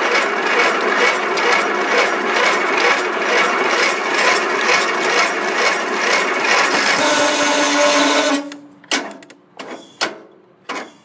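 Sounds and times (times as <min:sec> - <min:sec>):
starter cranking engine: 0:00.0 - 0:08.6.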